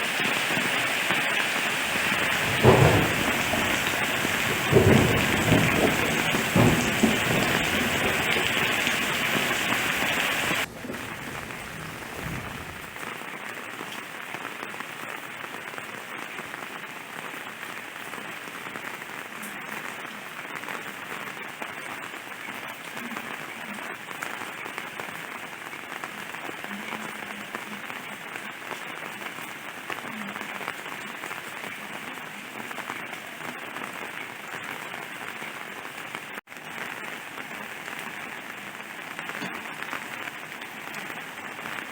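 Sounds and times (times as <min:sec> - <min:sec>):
rain falling: 0:00.0 - 0:41.9
low rumble: 0:10.6 - 0:13.0.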